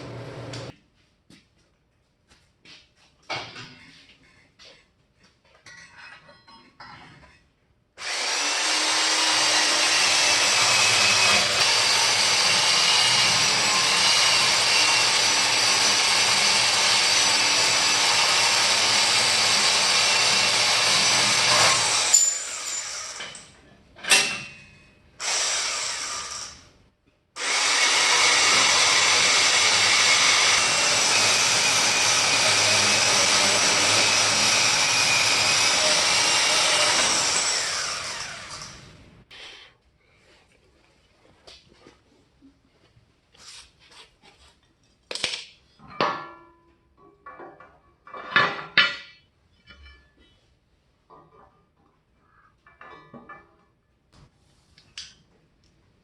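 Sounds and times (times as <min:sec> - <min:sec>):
angle grinder on steel: 0:08.0 - 0:24.4, 0:25.2 - 0:26.6, 0:27.4 - 0:39.0.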